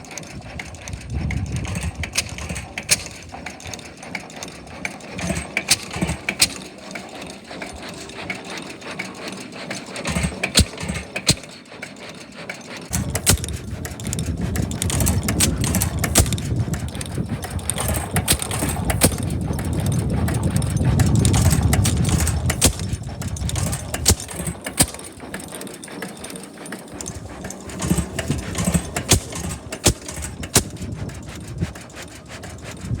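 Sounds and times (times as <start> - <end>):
gasoline engine running: 0.0 - 33.0
irregular sharp clicks: 5.6 - 6.7, 10.3 - 11.6, 12.9 - 14.2, 14.8 - 19.3, 27.9 - 30.9.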